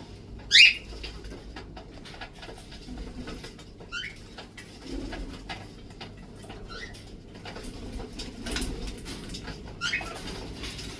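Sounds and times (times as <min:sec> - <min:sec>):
parrots chirping: 0:00.5 - 0:00.9.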